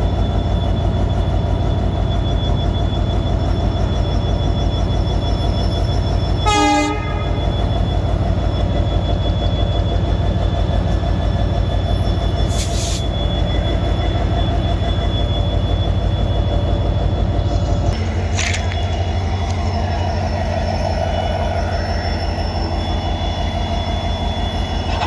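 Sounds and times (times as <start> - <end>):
diesel locomotive engine rumbling: 0.0 - 25.0
locomotive horn toot: 6.4 - 7.7.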